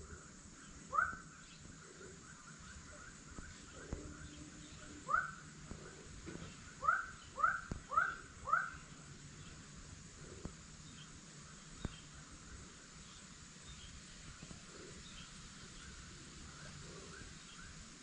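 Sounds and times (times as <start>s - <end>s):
bird calling: 0.6s - 9.6s.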